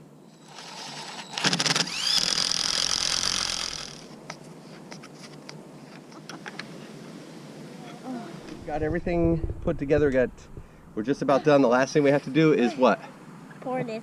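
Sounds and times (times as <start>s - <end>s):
power drill whining: 0.4s - 4.1s
short rattling burst: 0.5s - 4.1s.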